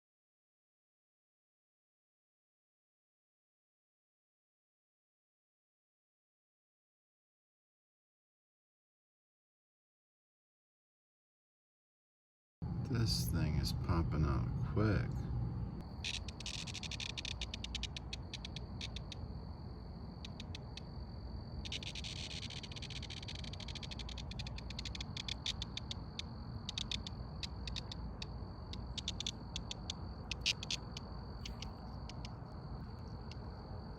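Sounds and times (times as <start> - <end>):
low background rumble: 12.6 - 33.9
insects trilling and chirping: 15.7 - 33.9.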